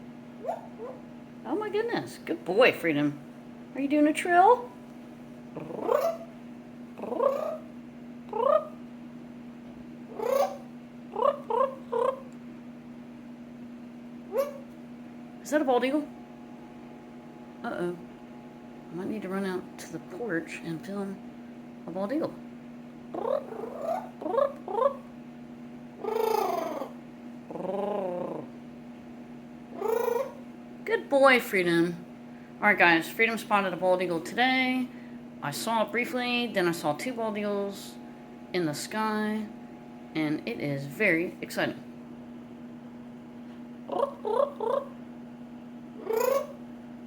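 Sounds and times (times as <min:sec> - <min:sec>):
steady low hum: 0:00.0 - 0:47.0
parrot trilling calls: 0:00.4 - 0:01.1, 0:05.7 - 0:06.4, 0:07.0 - 0:07.7, 0:10.1 - 0:12.3, 0:14.3 - 0:14.7, 0:23.1 - 0:25.1, 0:26.0 - 0:27.0, 0:29.7 - 0:30.4, 0:46.0 - 0:46.6.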